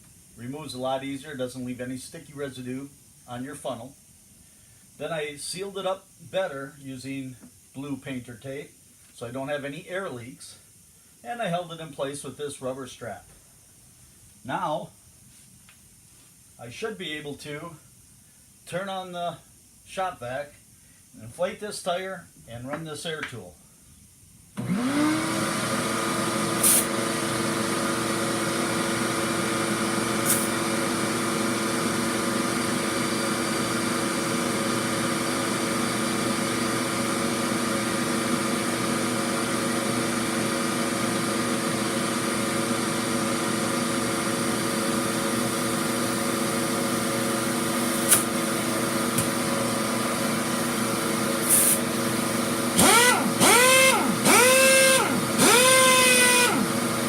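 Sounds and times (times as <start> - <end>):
shop vac motor whining: 24.6 - 57.0
air hissing: 26.5 - 27.0, 30.1 - 30.9, 47.4 - 49.7, 51.1 - 52.0.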